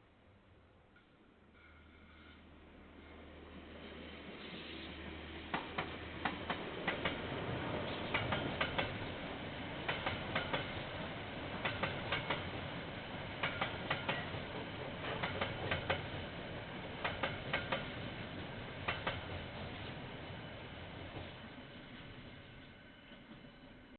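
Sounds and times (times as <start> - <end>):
train rumble: 2.5 - 23.9
train wheels clicking over rail joints: 5.5 - 20.0.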